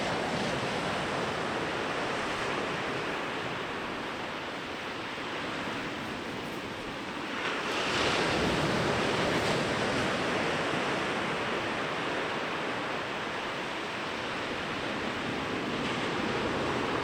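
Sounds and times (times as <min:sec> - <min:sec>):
waves breaking on a beach: 0:00.0 - 0:17.0.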